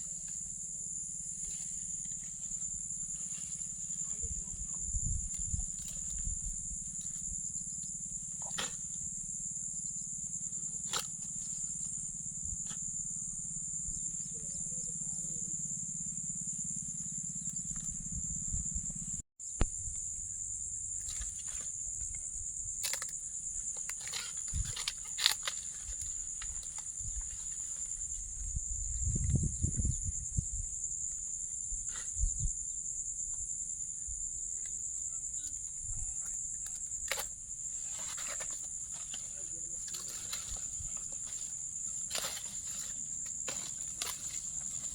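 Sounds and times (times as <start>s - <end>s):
insects shrilling: 19.4s - 29.0s, 34.5s - 44.9s.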